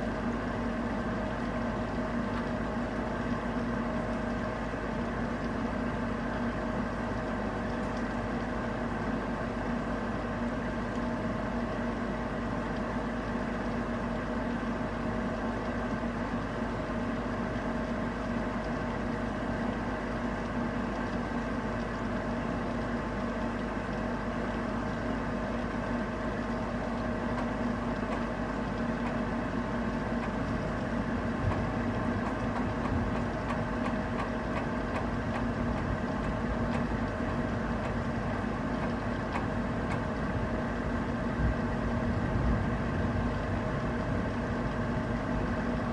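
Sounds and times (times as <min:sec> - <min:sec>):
low mechanical hum: 0:00.0 - 0:45.9.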